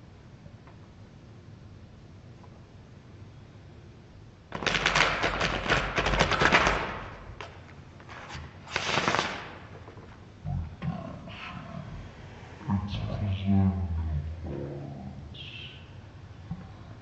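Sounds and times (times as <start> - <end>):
playing cards shuffling: 8.0 - 10.1.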